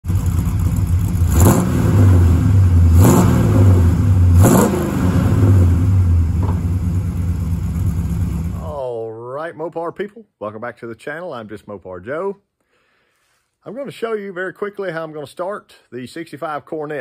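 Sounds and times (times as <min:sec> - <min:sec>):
car engine idling and revving: 0:00.0 - 0:08.6.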